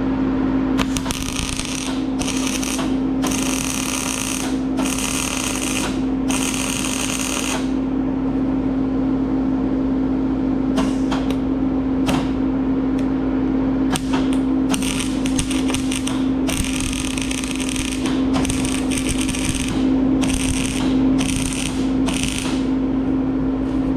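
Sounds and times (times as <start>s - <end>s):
steady electrical hum: 0.0s - 23.9s
welder arc crackling: 0.8s - 7.7s, 14.7s - 22.8s.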